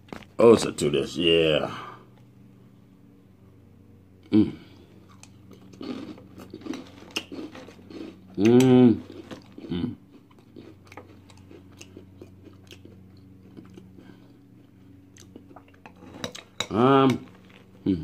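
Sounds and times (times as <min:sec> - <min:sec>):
person humming mmm: 0:04.2 - 0:04.9, 0:09.7 - 0:10.0
crunchy cereal chewing: 0:04.9 - 0:18.0.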